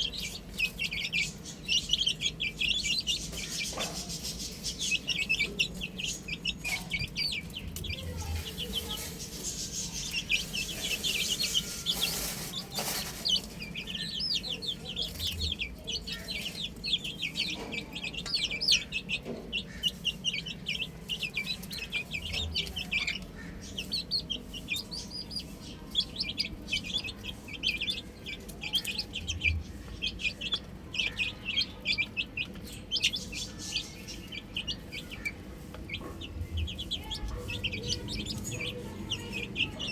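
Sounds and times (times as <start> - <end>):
baby chicks chirping: 0.0 - 39.9.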